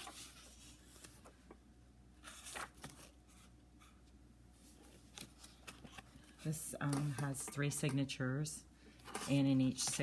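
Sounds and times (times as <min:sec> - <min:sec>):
paper pages rustling: 0:00.0 - 0:01.5, 0:02.2 - 0:04.0, 0:04.6 - 0:07.4.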